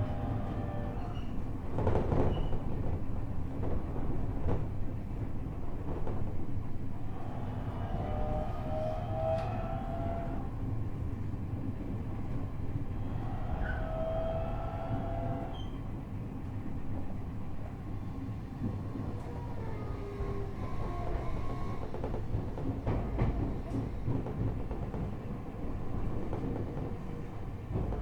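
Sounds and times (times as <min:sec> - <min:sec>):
train motor whine: 0:00.0 - 0:01.4, 0:07.0 - 0:10.8, 0:12.7 - 0:16.0, 0:18.6 - 0:25.1
train rail and wheel rumble: 0:00.0 - 0:28.0.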